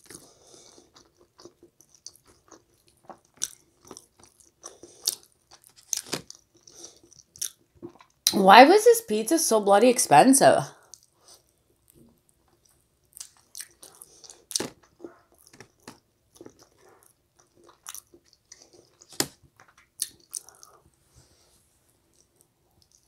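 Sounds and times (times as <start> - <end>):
pizza being chewed: 0.0 - 8.3, 10.8 - 23.0.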